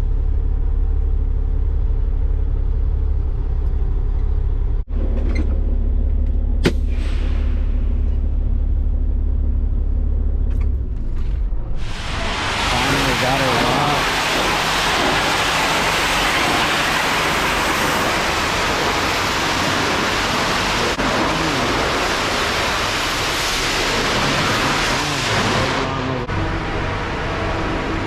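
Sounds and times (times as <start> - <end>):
water spray hissing on truck: 11.8 - 26.2.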